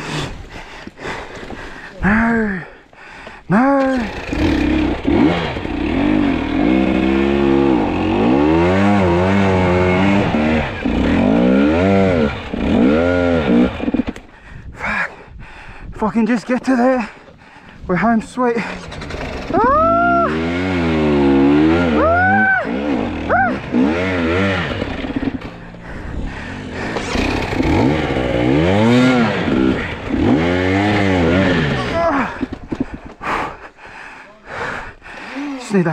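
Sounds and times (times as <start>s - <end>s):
dirt bike engine revving: 3.6s - 14.3s, 18.5s - 33.0s.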